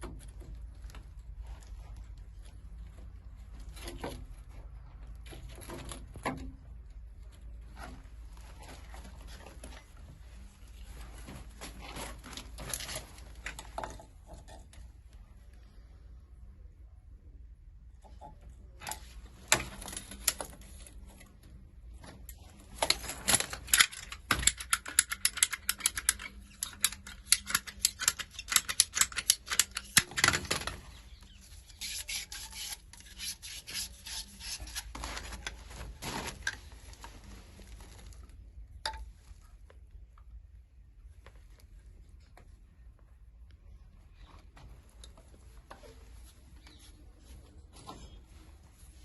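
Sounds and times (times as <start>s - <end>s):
rapid rasping strokes: 31.4s - 34.9s.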